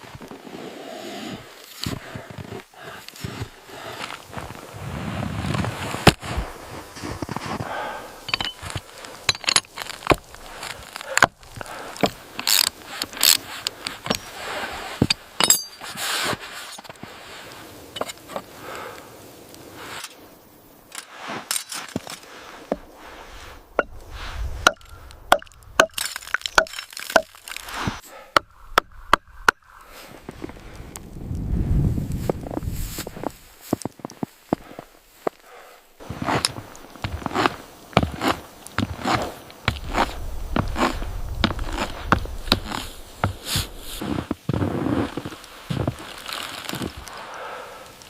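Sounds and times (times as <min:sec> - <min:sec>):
hand tools chopping wood: 0:07.1 - 0:14.3, 0:24.6 - 0:29.8, 0:36.2 - 0:44.4
metal clinks: 0:08.3 - 0:08.7, 0:15.1 - 0:15.9.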